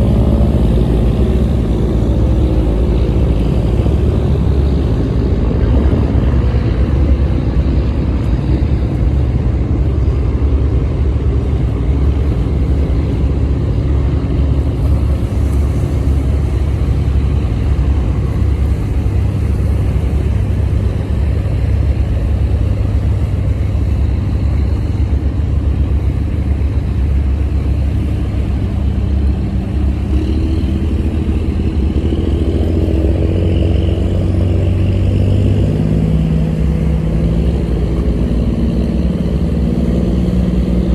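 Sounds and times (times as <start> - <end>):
boat diesel engine droning: 0.0 - 40.9.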